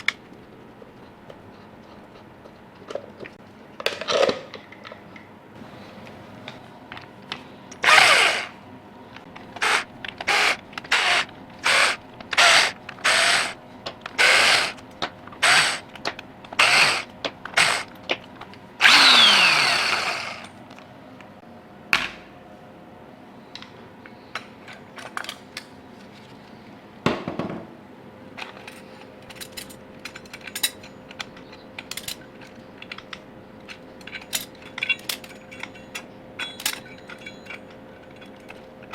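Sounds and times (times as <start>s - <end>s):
cordless drill whirring: 7.8s - 8.5s, 9.6s - 13.6s, 14.2s - 14.8s, 15.4s - 15.8s, 16.6s - 17.9s, 18.8s - 20.5s
tools and parts clicking: 9.3s - 20.6s, 28.4s - 38.9s.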